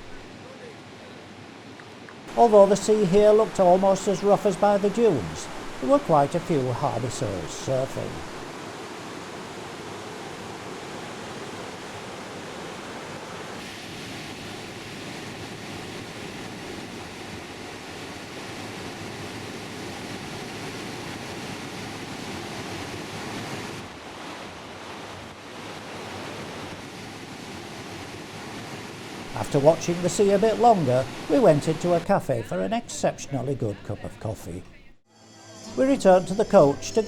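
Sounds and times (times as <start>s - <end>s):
surf waves breaking on beach: 0.0s - 34.8s, 35.7s - 37.0s.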